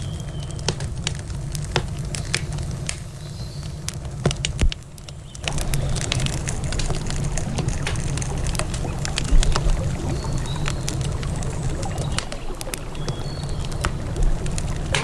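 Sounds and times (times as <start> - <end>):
campfire crackling and popping: 0.0 - 15.0
river water flowing: 5.4 - 15.0
steady low rumble: 5.5 - 15.0.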